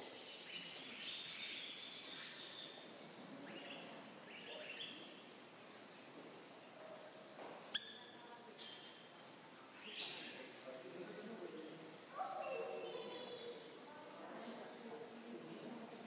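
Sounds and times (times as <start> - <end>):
birds chirping: 0.0 - 5.3.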